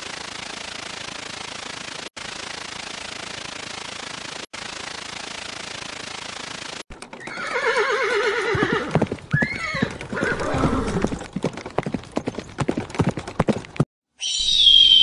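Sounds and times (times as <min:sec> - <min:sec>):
hooves clip-clopping: 0:06.9 - 0:13.8
horse whinnying: 0:07.2 - 0:11.2.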